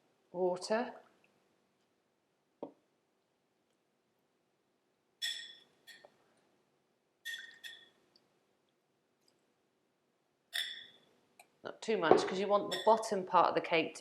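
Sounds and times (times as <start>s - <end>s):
spoon clinking against bowl: 10.5s - 11.0s, 12.7s - 13.0s.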